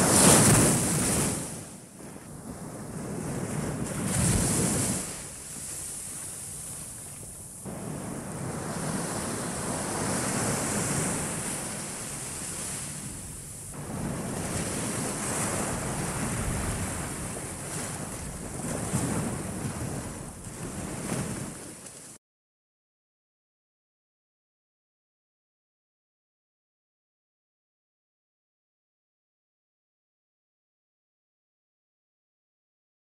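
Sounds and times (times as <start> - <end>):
small waves breaking on beach: 0.0 - 22.2.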